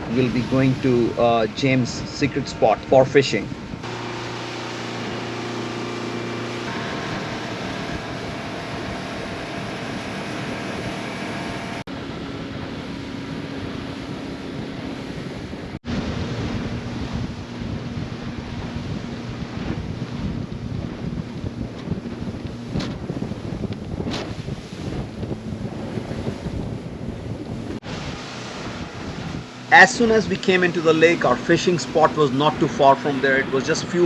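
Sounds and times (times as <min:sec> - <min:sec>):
wind buffeting microphone: 0:00.0 - 0:34.0
motorboat engine drone: 0:02.7 - 0:34.0
water rushing past: 0:03.6 - 0:11.9, 0:24.2 - 0:34.0.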